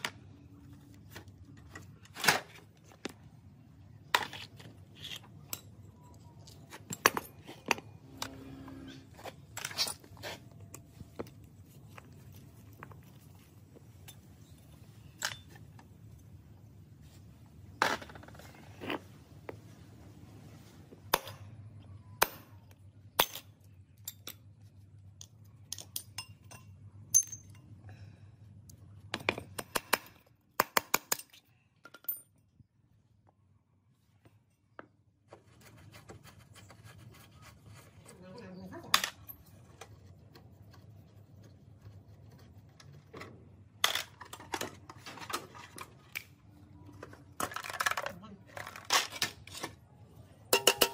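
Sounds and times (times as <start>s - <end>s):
metal parts clinking and tapping: 4.1s - 8.3s, 15.1s - 15.9s, 23.2s - 27.8s, 31.1s - 32.4s, 50.5s - 50.9s.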